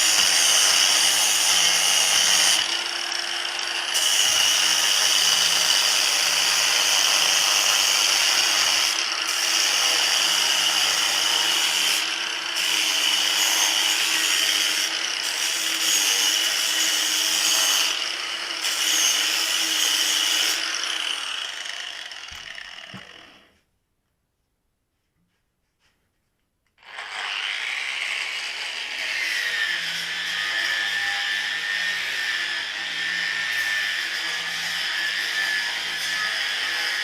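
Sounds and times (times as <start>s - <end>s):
power tool motor whine: 19.1s - 23.5s, 26.8s - 36.7s.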